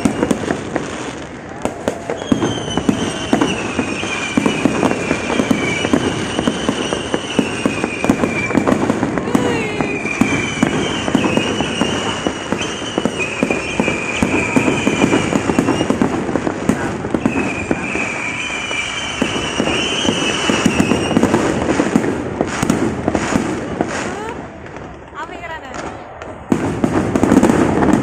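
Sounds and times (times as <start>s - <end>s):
fireworks crackling and banging: 0.0s - 28.0s
fireworks whistling: 0.0s - 28.0s.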